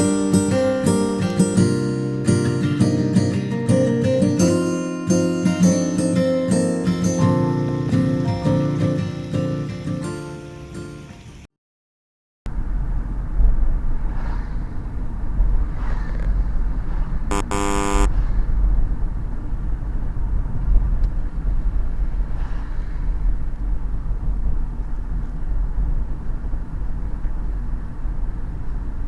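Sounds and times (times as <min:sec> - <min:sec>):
short horn toot: 0:17.3 - 0:18.1.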